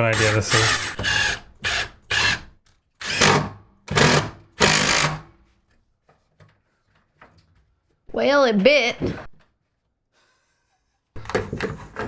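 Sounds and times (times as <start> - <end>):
power drill driving screw: 0.0 - 5.3.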